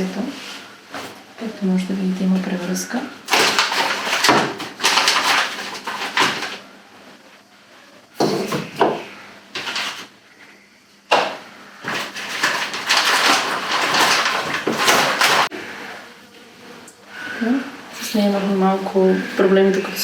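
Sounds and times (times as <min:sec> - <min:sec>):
objects being handled: 0:03.3 - 0:06.6, 0:08.2 - 0:10.1, 0:11.1 - 0:15.5.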